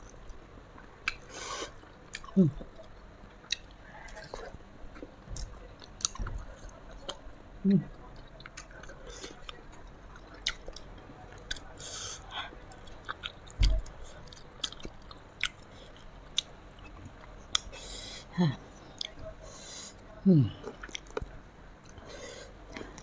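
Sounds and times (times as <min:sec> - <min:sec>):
chewing and crunching food: 0:00.0 - 0:17.8, 0:20.4 - 0:23.0
person humming mm: 0:20.2 - 0:20.7.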